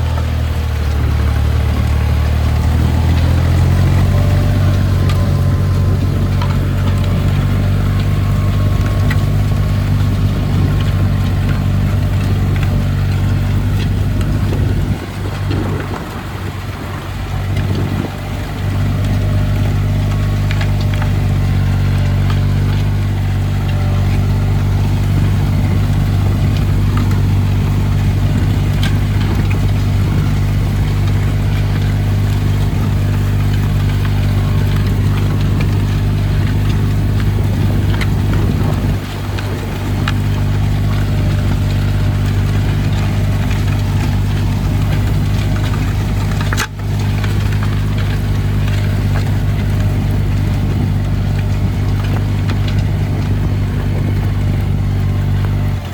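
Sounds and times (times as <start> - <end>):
tractor engine droning: 0.0 - 55.9.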